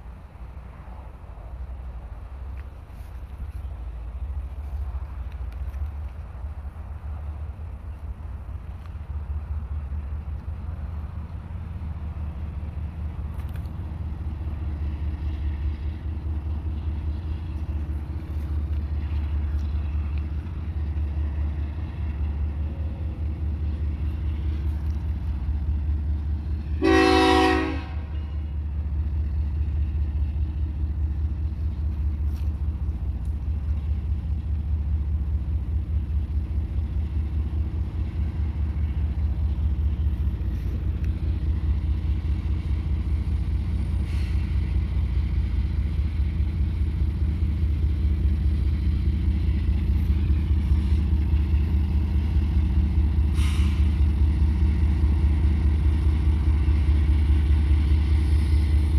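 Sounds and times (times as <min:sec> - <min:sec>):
diesel locomotive engines rumbling: 0:00.0 - 0:58.9
train horn blast: 0:26.7 - 0:28.4.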